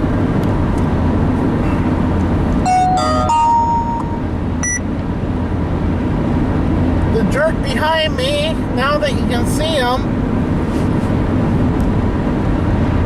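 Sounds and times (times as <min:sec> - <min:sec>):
road and engine noise in cab: 0:00.0 - 0:13.0
electronic beeps in stepped pitches: 0:02.7 - 0:04.8.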